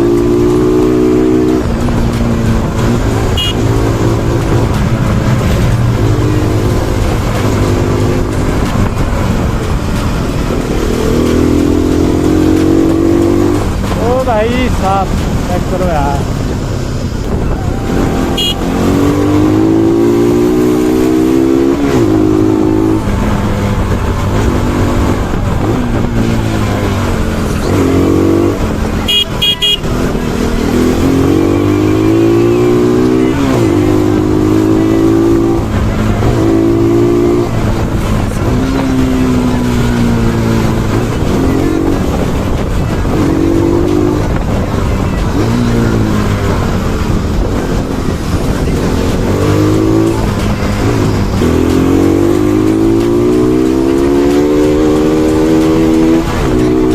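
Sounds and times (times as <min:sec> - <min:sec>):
motorcycle engine revving: 0:00.0 - 0:56.9
vehicle horn beep: 0:03.3 - 0:03.8, 0:18.0 - 0:19.0, 0:29.0 - 0:30.0.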